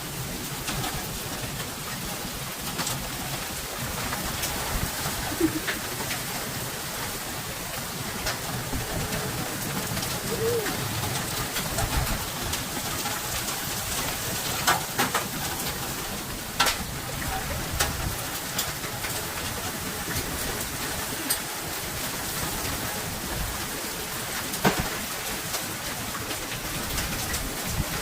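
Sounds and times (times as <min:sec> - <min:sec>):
steady rain falling: 0:00.0 - 0:28.0
dove cooing: 0:05.0 - 0:06.5, 0:08.8 - 0:11.9, 0:20.8 - 0:21.9.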